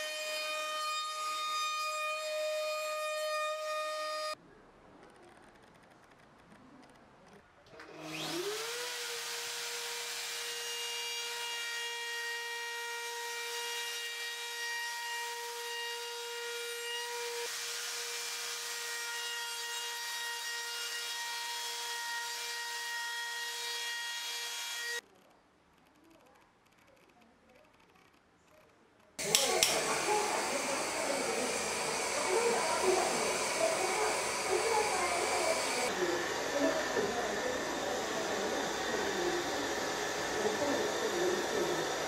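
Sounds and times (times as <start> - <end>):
power tool whining while cutting wood: 0.0 - 4.4, 7.8 - 25.0, 29.2 - 42.0.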